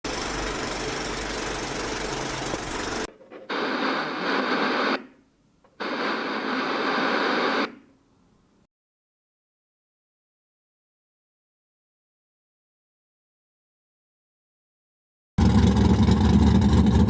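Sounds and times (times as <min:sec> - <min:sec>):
engine running: 0:00.0 - 0:03.1, 0:15.4 - 0:17.0
radio static hiss: 0:02.3 - 0:07.8.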